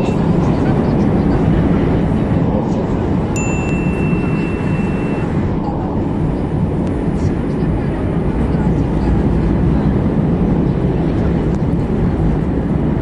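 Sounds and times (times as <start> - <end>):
metro train rumbling: 0.0 - 13.0
thin high tone: 3.4 - 5.4.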